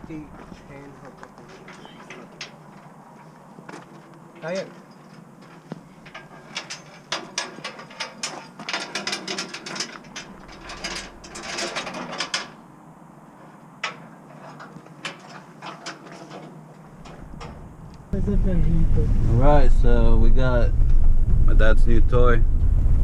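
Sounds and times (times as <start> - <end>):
metallic clicks and rattles: 4.4 - 12.6, 13.8 - 17.7.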